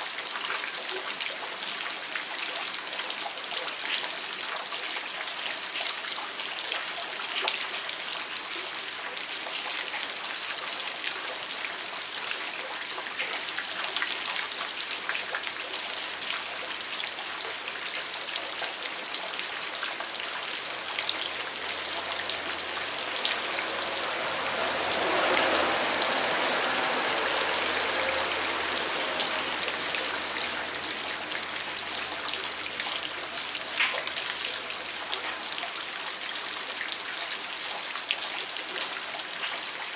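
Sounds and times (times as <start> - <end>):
rain falling: 0.0 - 39.9
running water rushing: 1.1 - 39.9.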